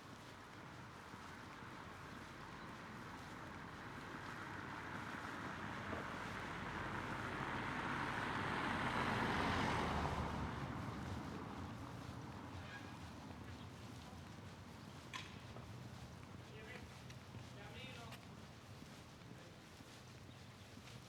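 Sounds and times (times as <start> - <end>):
road vehicle passing: 7.2 - 11.3.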